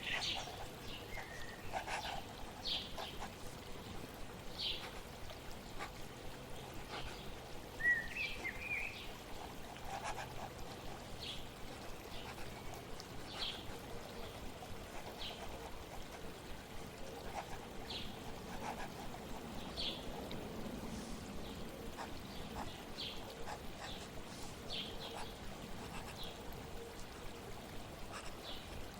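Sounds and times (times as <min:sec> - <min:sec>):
water trickling: 0:00.0 - 0:28.9
bird chirping: 0:07.8 - 0:09.1.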